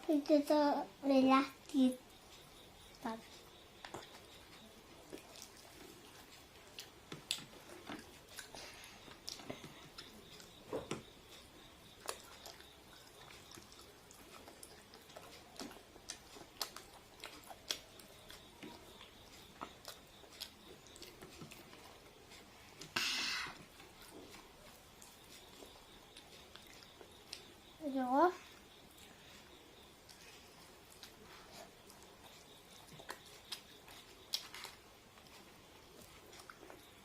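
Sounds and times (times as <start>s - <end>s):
chewing and biting food: 3.8s - 23.0s, 23.6s - 27.6s, 28.7s - 37.0s
mouth smacks and crunches: 31.9s - 35.4s.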